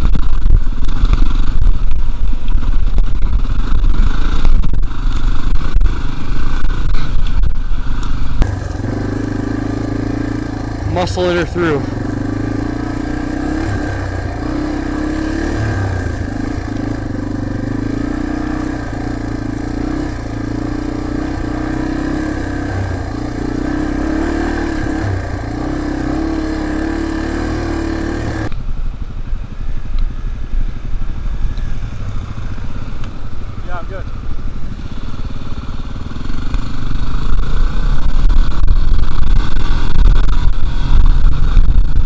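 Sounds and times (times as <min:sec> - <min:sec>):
dirt bike engine running: 0:08.2 - 0:28.5, 0:31.1 - 0:42.0.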